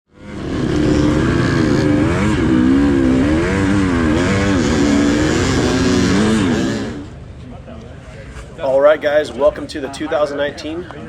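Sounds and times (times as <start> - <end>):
dirt bike engine revving: 0.1 - 7.2.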